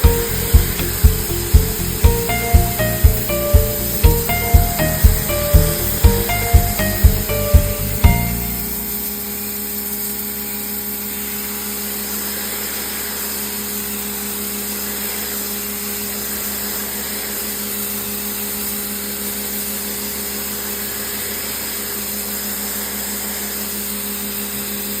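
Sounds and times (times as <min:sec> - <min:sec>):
pressure washer running: 0:00.0 - 0:18.6.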